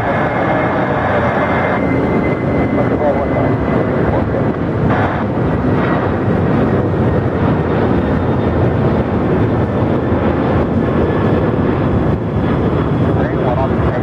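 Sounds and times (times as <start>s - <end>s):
faint high whine: 0.0s - 4.6s
jet engines rushing: 0.0s - 14.0s.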